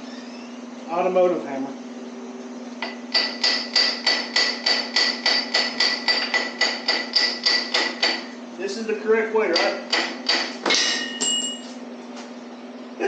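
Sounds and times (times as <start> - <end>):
hammer striking metal pulley: 2.8 - 8.3, 9.5 - 11.6.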